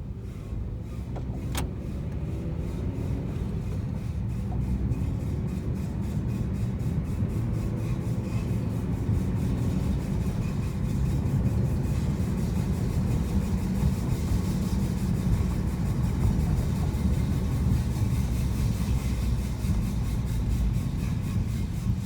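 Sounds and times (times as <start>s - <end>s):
car brakes grinding: 0.1s - 4.8s.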